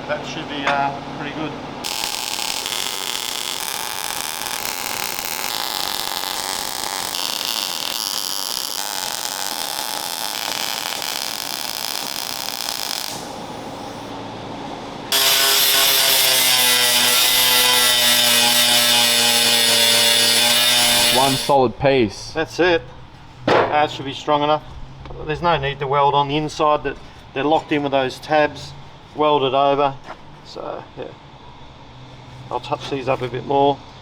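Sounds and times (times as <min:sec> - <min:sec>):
angle grinder grinding steel: 0:15.1 - 0:21.6.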